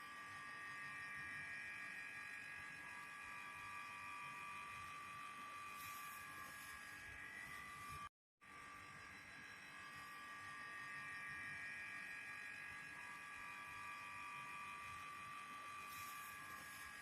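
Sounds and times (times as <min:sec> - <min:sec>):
handheld vacuum cleaner whining: 0:00.0 - 0:08.1, 0:09.4 - 0:17.0.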